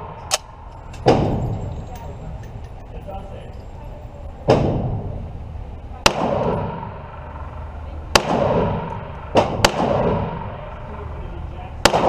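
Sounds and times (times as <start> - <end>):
gunshots with ringing echo: 0.0 - 1.8, 6.0 - 11.2, 11.8 - 12.0.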